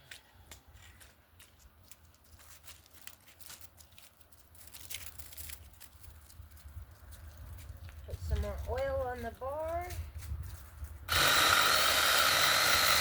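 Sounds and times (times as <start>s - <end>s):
twigs snapping and rustling: 1.9s - 8.0s.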